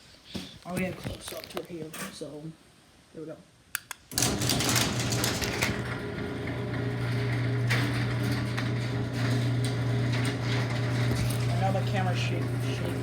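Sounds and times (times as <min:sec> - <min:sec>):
garage door opener motor humming: 0:04.1 - 0:13.0.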